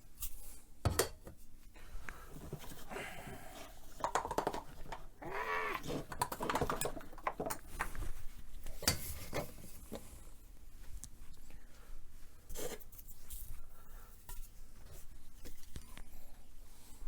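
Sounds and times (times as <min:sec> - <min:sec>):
small objects clicking and knocking: 0:03.9 - 0:08.0.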